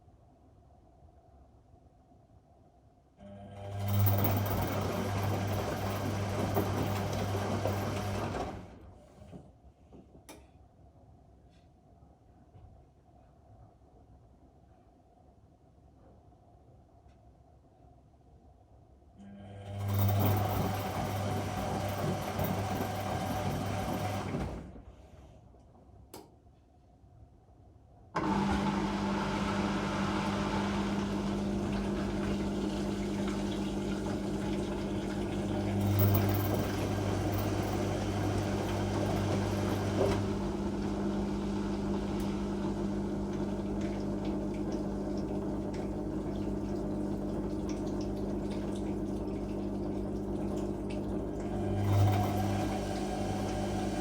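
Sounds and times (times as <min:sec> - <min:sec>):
washing machine taking in water: 0:03.6 - 0:08.9, 0:19.6 - 0:24.8, 0:28.2 - 0:54.0.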